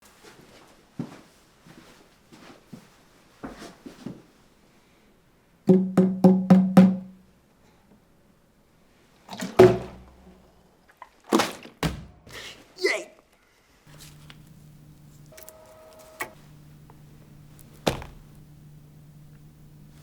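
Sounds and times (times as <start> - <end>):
plastic bottles thudding: 9.3 - 10.3, 11.2 - 12.6, 17.7 - 18.4.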